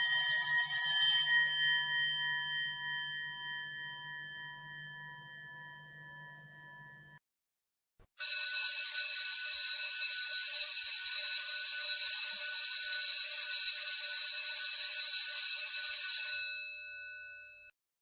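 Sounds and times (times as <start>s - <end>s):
bell gong tone ringing on: 0.0s - 7.2s
electric school bell ringing: 0.0s - 7.2s, 8.2s - 16.8s.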